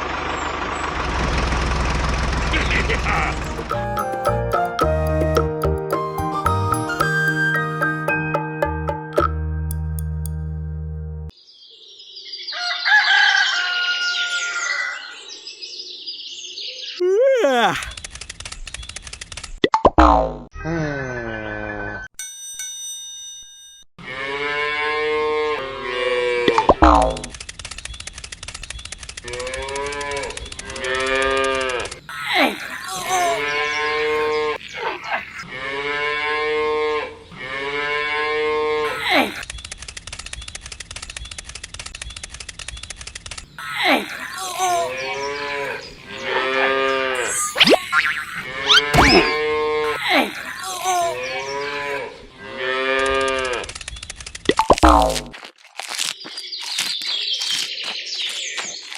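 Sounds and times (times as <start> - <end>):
rooster crowing: 12.5 - 15.2
small birds chirping: 32.0 - 35.4, 38.9 - 52.3, 56.0 - 58.9
cattle mooing: 35.4 - 39.0, 45.2 - 47.3.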